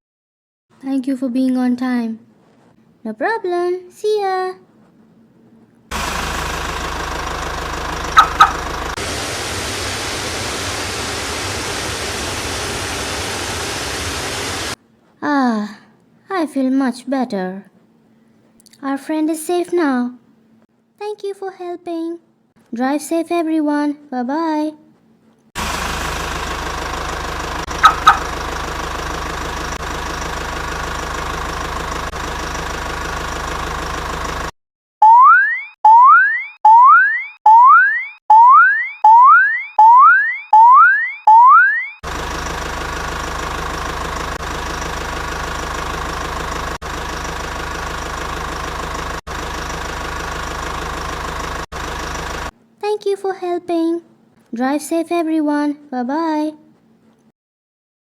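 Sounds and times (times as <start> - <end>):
toy truck engine sound effect: 5.9 - 9.0, 25.6 - 31.2
car engine running: 5.9 - 14.8, 25.6 - 34.5, 42.0 - 52.6
steady noise: 5.9 - 14.8
horn honks: 8.1 - 8.8, 27.7 - 28.4.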